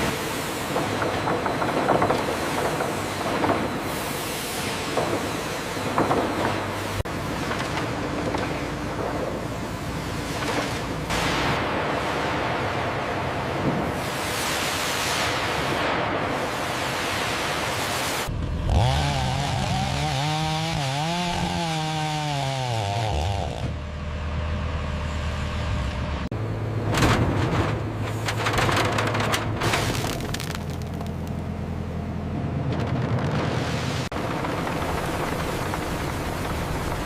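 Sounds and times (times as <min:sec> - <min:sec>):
wood cracking in chipper: 0:00.7 - 0:03.9, 0:05.9 - 0:09.5, 0:26.8 - 0:31.6
wood chipper engine running: 0:18.3 - 0:33.4.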